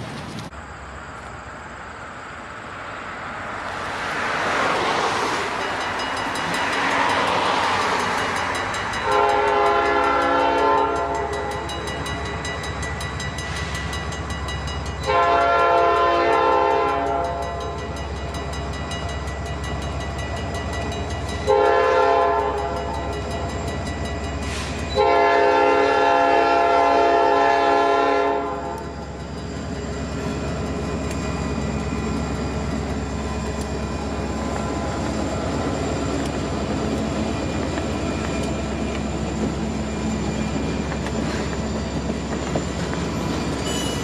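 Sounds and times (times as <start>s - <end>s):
passing train rumble: 0.0s - 44.0s
train air horn blasts: 9.0s - 11.7s, 15.0s - 17.5s, 21.4s - 23.0s, 24.4s - 28.9s.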